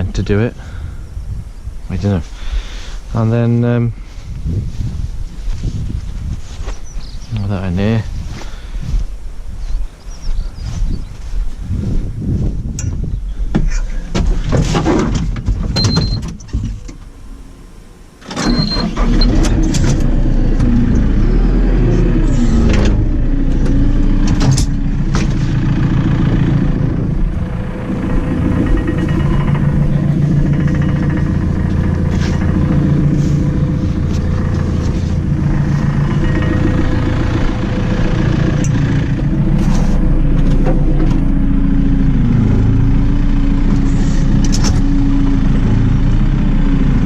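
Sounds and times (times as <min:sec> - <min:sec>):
engine running: 0:13.6 - 0:47.0
sharp knocks and clanks: 0:27.5 - 0:41.3.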